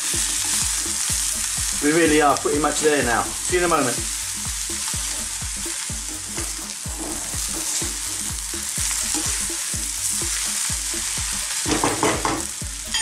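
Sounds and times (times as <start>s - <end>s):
vegetables sizzling in oil: 0.0s - 13.0s
spatula stirring in pan: 2.8s - 12.0s.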